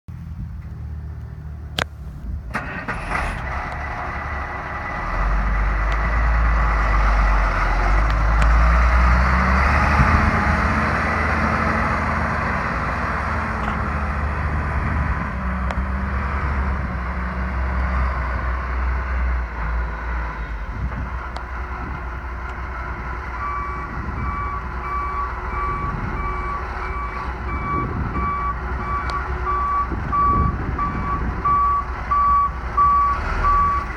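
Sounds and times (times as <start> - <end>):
diesel truck engine running: 0.1 - 33.9
reversing alarm beeping: 23.4 - 33.9.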